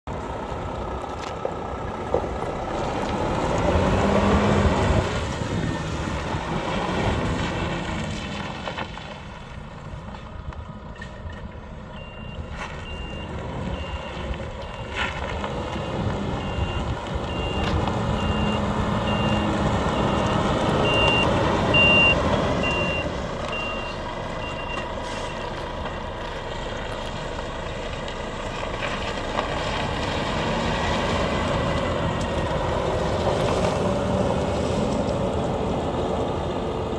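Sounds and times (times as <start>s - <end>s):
diesel truck engine running: 0.0s - 36.9s
reversing alarm beeping: 11.2s - 15.0s, 15.6s - 25.6s.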